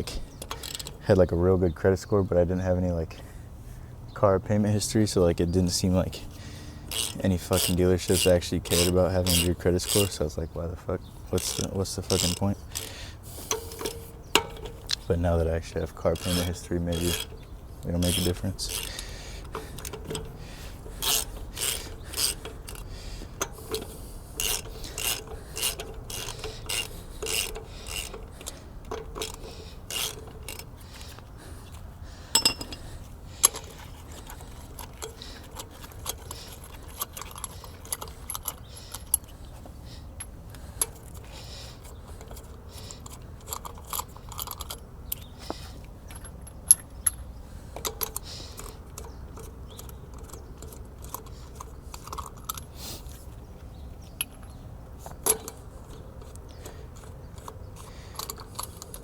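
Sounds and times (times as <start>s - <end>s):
sharp metallic clicks: 0.0s - 1.0s, 6.4s - 10.5s, 11.3s - 39.4s, 40.2s - 52.7s, 54.1s - 59.0s
rasping strokes: 6.2s - 10.3s, 11.3s - 39.4s.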